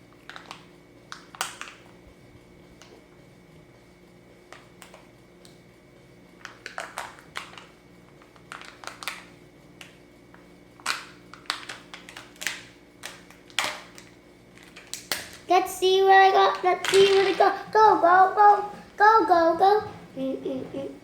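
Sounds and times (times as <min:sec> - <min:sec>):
faint steady hum: 0:00.0 - 0:21.0
small objects clicking and tapping: 0:00.3 - 0:01.9, 0:10.8 - 0:15.5.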